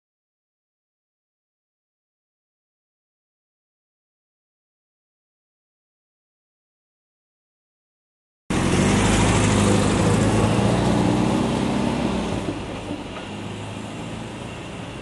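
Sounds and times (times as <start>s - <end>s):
road noise: 8.5s - 15.0s
vehicle engine humming: 8.5s - 15.0s.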